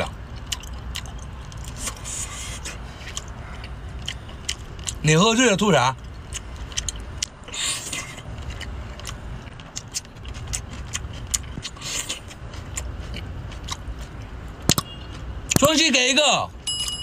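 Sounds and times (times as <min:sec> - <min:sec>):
person chewing wetly: 0:00.0 - 0:05.0, 0:06.0 - 0:15.6
low steady rumble: 0:00.0 - 0:15.6.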